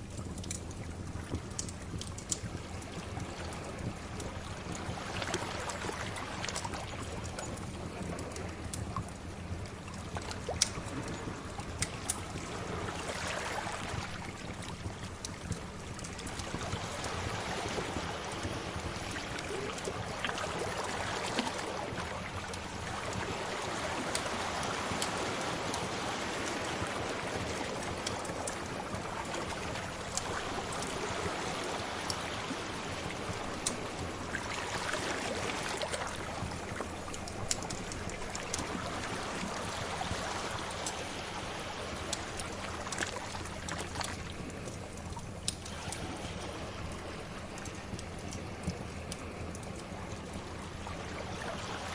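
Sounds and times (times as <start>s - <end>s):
wood fire crackling: 0.1s - 20.8s, 26.4s - 35.3s, 35.9s - 39.6s
sea waves washing ashore: 2.3s - 51.9s.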